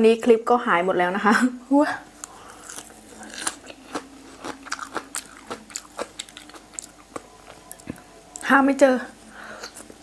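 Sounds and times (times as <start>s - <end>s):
crunchy chewing: 2.2s - 8.5s.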